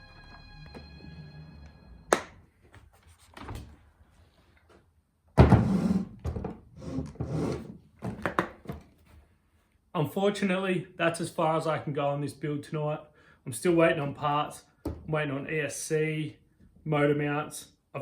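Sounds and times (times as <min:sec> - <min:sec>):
background music: 0:00.0 - 0:02.4
objects thunking and rubbing: 0:05.4 - 0:09.2.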